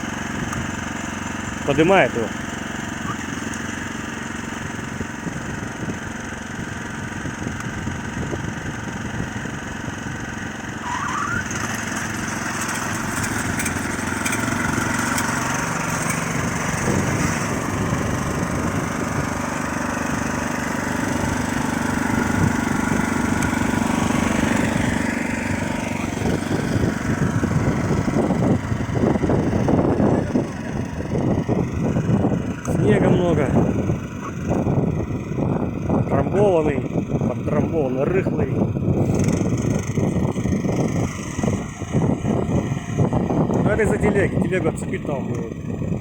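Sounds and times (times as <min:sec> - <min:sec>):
walk-behind tractor engine running: 0:00.0 - 0:46.0.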